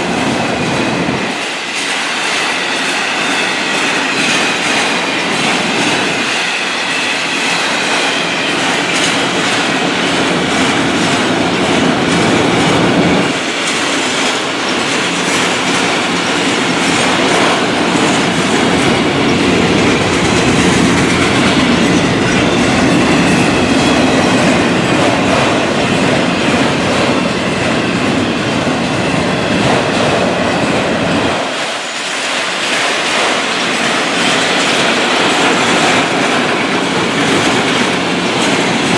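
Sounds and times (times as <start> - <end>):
train rail rumble: 0.0 - 38.9.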